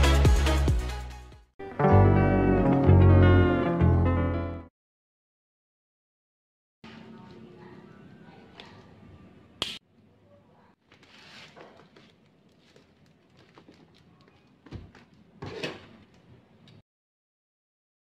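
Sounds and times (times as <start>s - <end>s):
plastic wrapping rustling: 10.8s - 16.3s.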